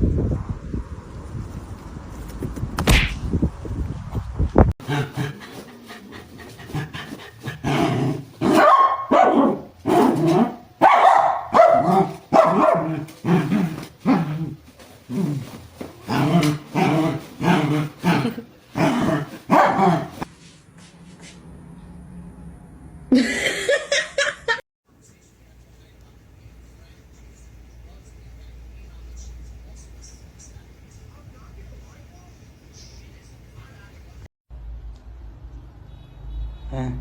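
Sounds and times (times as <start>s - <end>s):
dog barking: 7.6s - 14.4s, 16.4s - 20.2s.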